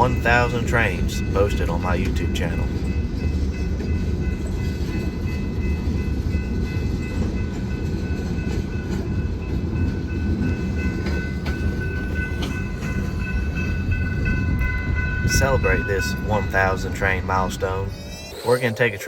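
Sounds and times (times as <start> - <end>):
train wheels rumbling on rails: 0.0 - 18.1
high-pitched wheel squeal: 16.5 - 18.8.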